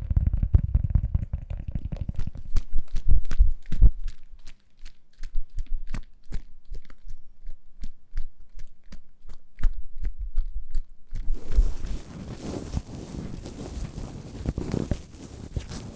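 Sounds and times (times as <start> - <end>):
crisp clicks and crunches: 11.1 - 15.9.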